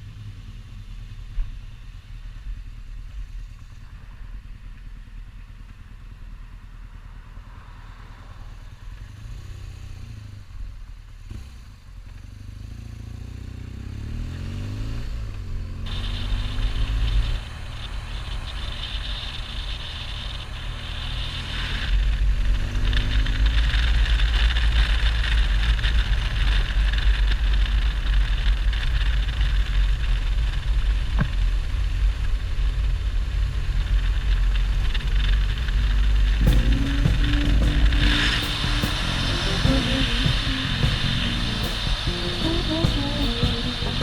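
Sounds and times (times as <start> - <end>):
motorcycle engine accelerating: 0.0 - 44.0
loud rushing noise: 15.9 - 19.0, 36.3 - 44.0.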